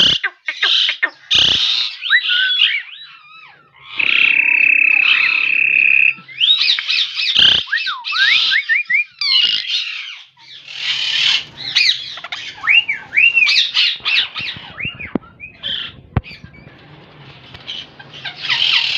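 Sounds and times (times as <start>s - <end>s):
parakeet squawking and whistling: 0.0s - 18.9s
steady high-pitched tone: 4.0s - 6.5s.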